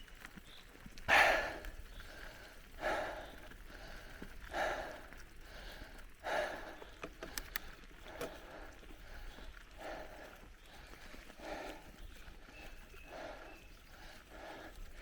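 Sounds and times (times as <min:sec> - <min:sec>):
heavy rhythmic breathing: 0:01.1 - 0:15.0
faint sharp clicks: 0:06.6 - 0:09.4.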